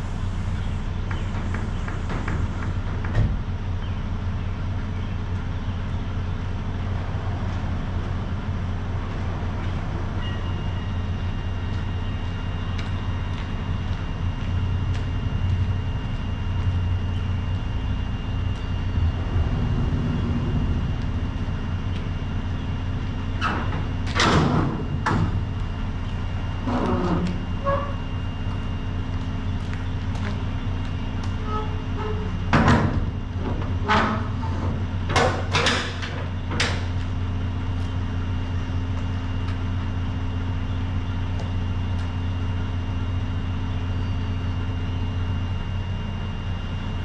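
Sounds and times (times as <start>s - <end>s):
diesel truck engine rumbling: 0.0s - 47.0s
sharp squeaks and knocks: 26.6s - 28.2s, 31.2s - 36.9s.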